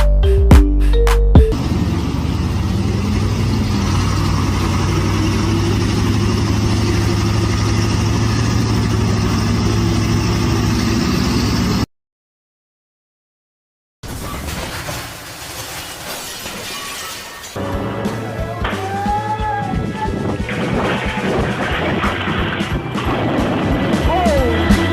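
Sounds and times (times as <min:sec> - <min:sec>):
vehicle engine running: 0:01.4 - 0:11.9, 0:17.6 - 0:24.9.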